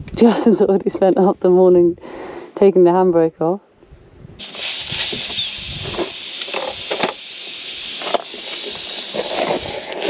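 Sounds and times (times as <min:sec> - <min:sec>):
air hissing from tyre: 0:04.4 - 0:10.0.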